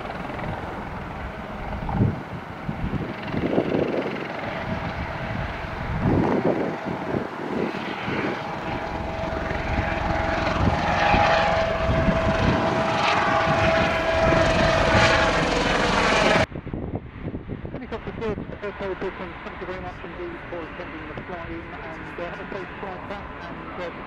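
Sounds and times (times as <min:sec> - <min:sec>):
helicopter engine and rotor: 0:00.0 - 0:16.5, 0:17.8 - 0:24.0
steady whine: 0:00.0 - 0:16.6, 0:17.7 - 0:24.0.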